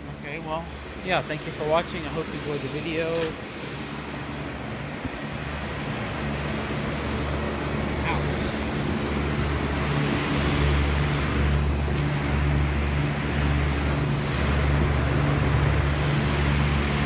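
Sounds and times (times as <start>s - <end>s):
air conditioner hum: 0.0s - 17.0s
fan rushing: 0.0s - 17.0s.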